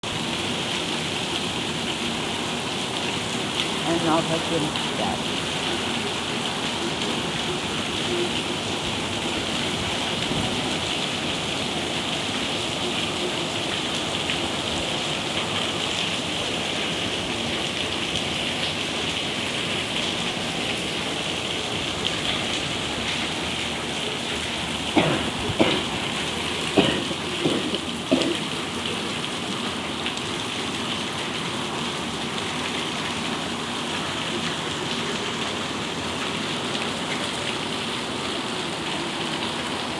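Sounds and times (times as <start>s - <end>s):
steady rain: 0.0s - 39.9s
sharp knocks: 25.0s - 26.1s, 26.8s - 28.4s.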